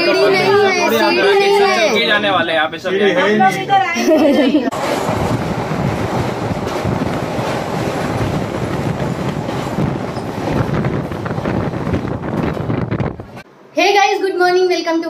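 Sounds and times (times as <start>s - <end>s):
trains rumbling and rattling: 4.1s - 13.4s.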